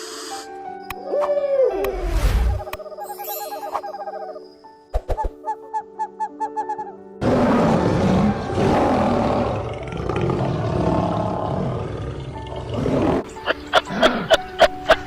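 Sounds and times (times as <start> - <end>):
large animal roaring: 7.2 - 13.2.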